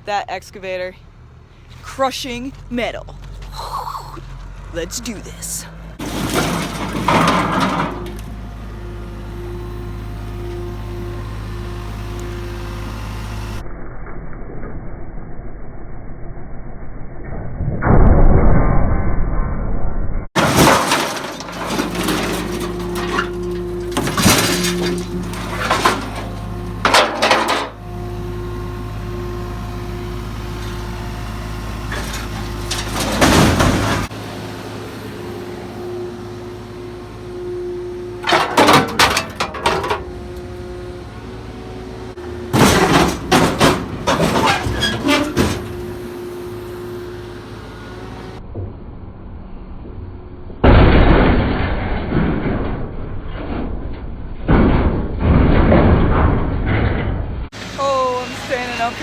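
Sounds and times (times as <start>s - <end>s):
excavator engine running: 0.0s - 13.6s, 20.4s - 50.5s, 57.5s - 59.0s
scrap metal banging and crunching: 1.7s - 11.7s, 20.4s - 48.4s, 50.6s - 59.0s.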